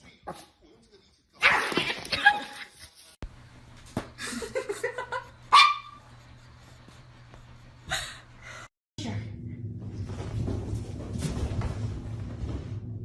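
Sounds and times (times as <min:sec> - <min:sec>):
dog barking sharply: 0:05.5 - 0:06.0
dog yipping: 0:05.5 - 0:06.0.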